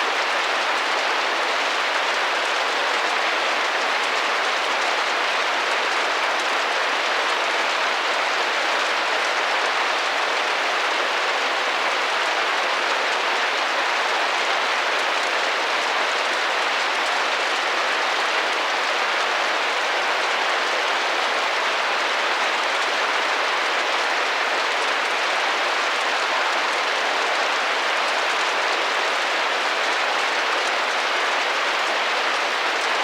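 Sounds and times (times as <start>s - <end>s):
rain drumming on a window: 0.0s - 33.0s.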